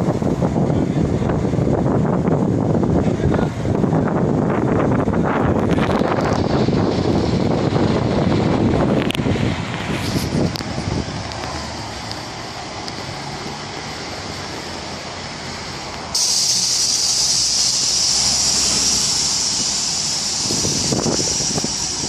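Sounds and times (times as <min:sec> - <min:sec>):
moving vehicle rumble: 0:00.0 - 0:22.0
loud steady high hiss: 0:10.2 - 0:22.0.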